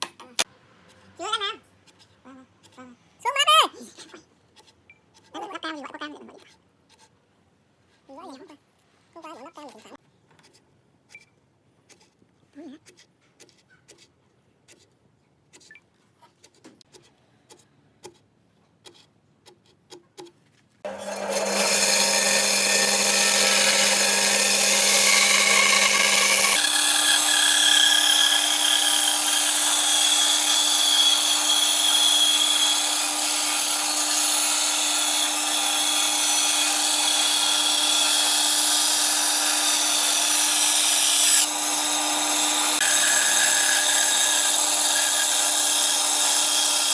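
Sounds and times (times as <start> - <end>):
power tool running on wood: 20.9 - 46.9.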